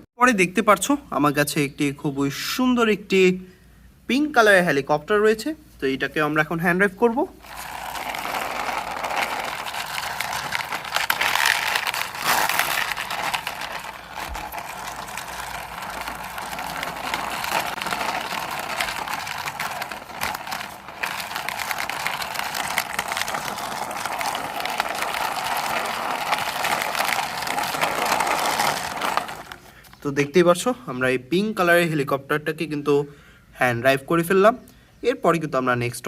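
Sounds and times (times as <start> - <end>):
toy rattling and scraping: 7.4 - 30.0.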